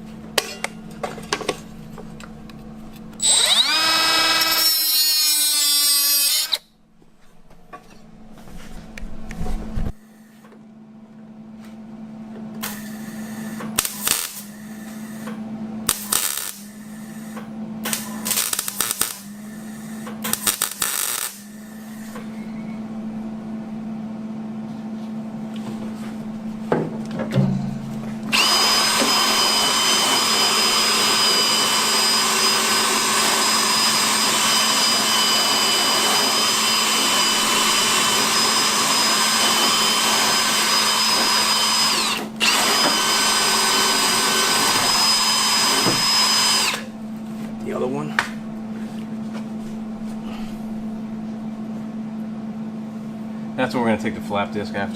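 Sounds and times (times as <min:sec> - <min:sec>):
electrical hum: 0:00.0 - 0:54.9
power grinder whining: 0:03.2 - 0:06.7, 0:12.6 - 0:22.4, 0:28.2 - 0:47.0
arc welding crackling: 0:13.7 - 0:15.2, 0:15.8 - 0:22.2.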